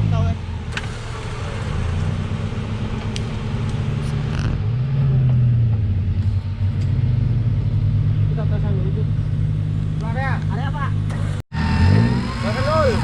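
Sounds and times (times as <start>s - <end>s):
off-road vehicle engine under load: 0.0s - 13.0s.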